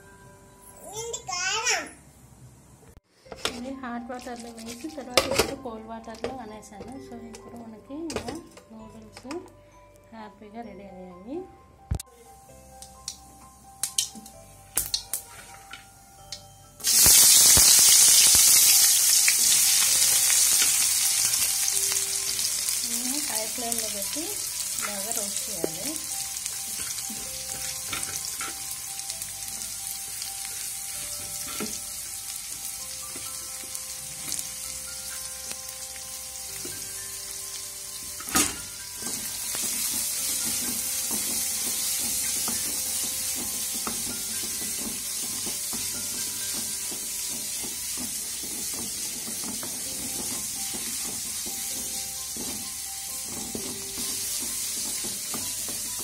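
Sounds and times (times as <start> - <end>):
onions sizzling in oil: 16.8 - 56.0.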